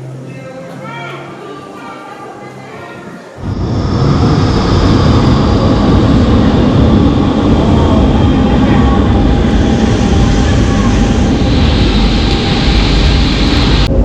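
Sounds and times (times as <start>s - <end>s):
faint steady whine: 3.3s - 14.0s
train rumble: 3.3s - 14.0s.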